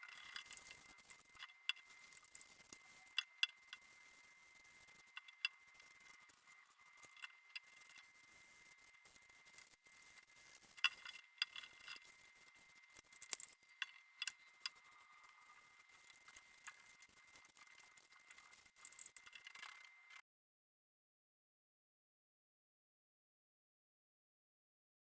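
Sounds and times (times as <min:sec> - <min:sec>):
clicks and taps of small objects: 0:09.1 - 0:12.2, 0:12.9 - 0:14.9, 0:15.8 - 0:20.0.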